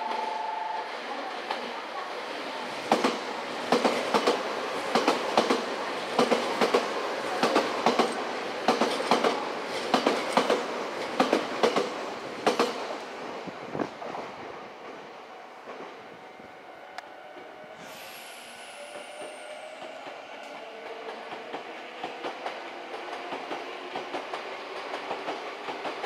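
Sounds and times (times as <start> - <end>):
steady train rumble: 2.4 - 26.0.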